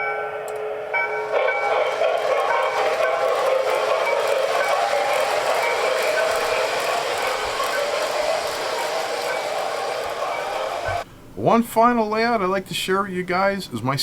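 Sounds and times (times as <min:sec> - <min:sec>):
wheels clattering on rail: 0:01.0 - 0:11.0
model train motor whir: 0:01.2 - 0:11.0.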